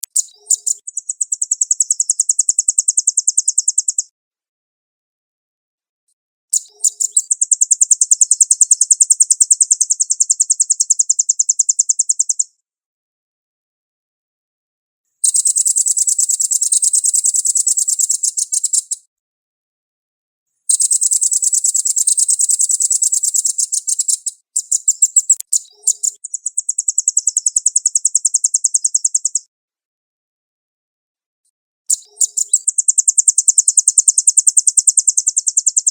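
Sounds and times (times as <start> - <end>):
bird singing high-pitched trills: 0.0 - 4.1, 6.6 - 12.5, 15.2 - 19.0, 20.7 - 29.5, 31.9 - 35.9.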